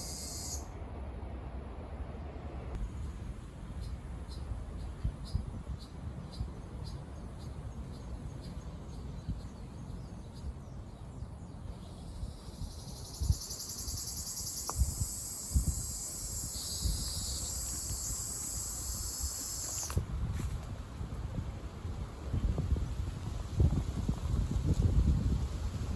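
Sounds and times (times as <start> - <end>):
cicada buzzing song: 0.0 - 0.7, 12.0 - 20.0
faint ticks: 14.4 - 15.0.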